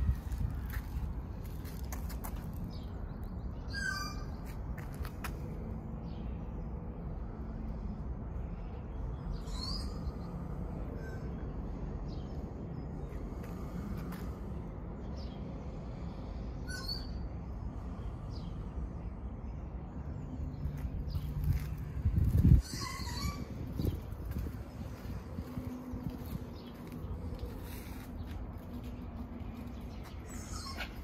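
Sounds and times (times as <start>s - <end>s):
steady low rumble: 0.0s - 16.6s, 17.2s - 31.0s
birds calling: 20.6s - 31.0s.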